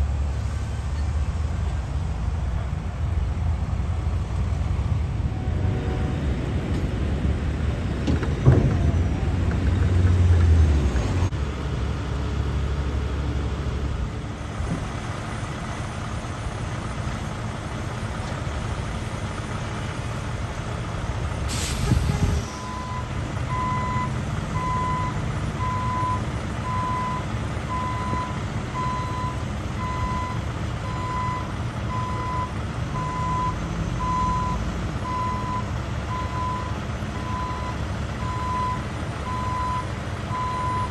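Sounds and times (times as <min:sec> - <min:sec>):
truck engine running: 0:00.0 - 0:40.9
air brakes hissing: 0:21.4 - 0:22.8
reversing alarm beeping: 0:22.5 - 0:40.9.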